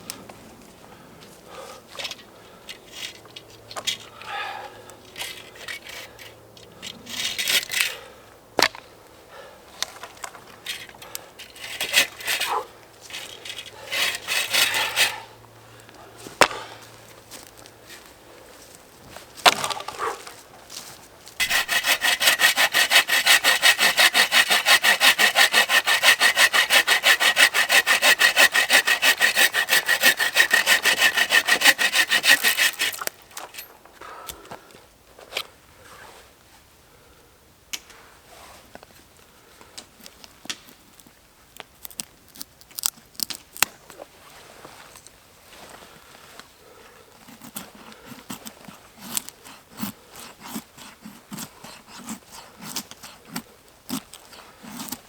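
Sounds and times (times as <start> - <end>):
handling and scraping: 0.0 - 4.3, 5.0 - 8.0, 9.7 - 15.3, 16.1 - 34.0, 37.8 - 55.0
hand saw cutting wood: 5.2 - 6.3, 7.1 - 7.9, 10.7 - 15.3, 19.4 - 20.8, 21.4 - 33.7, 47.2 - 55.0.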